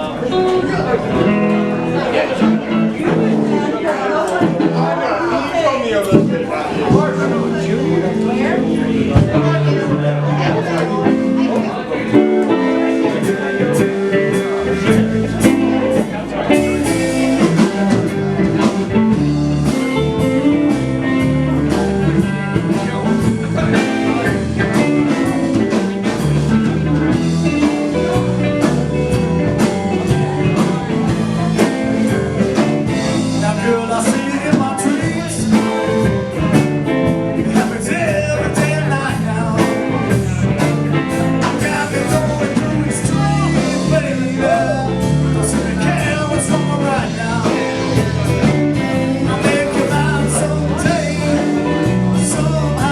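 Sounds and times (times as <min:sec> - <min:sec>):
live blues band: 0:00.0 - 0:52.9
person singing: 0:27.6 - 0:52.9.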